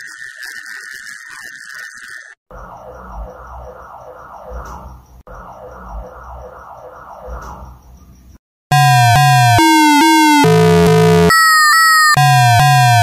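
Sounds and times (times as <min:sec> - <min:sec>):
wailing siren alarm: 0:00.0 - 0:04.6, 0:05.3 - 0:07.4, 0:08.7 - 0:13.0
electronic alarm tones: 0:08.7 - 0:13.0.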